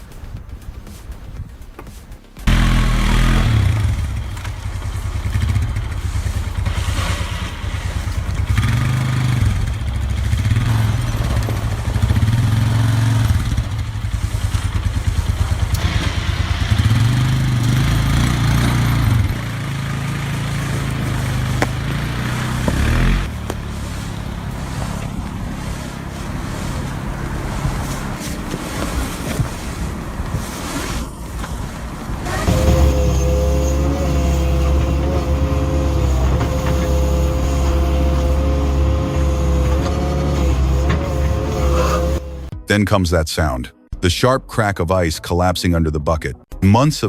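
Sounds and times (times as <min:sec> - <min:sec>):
heavy engine revving: 0:02.5 - 0:42.6.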